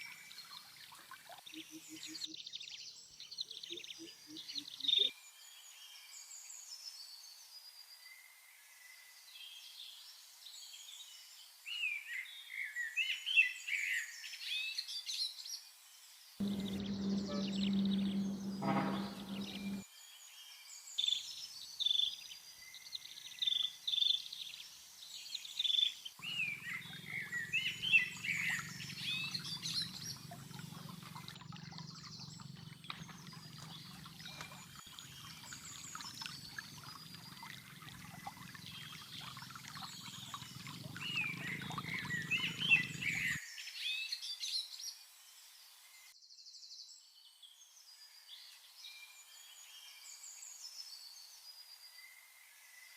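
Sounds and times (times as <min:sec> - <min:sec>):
low steady hum: 0:16.4 - 0:19.8
small birds chirping: 0:16.4 - 0:19.8, 0:26.2 - 0:43.4.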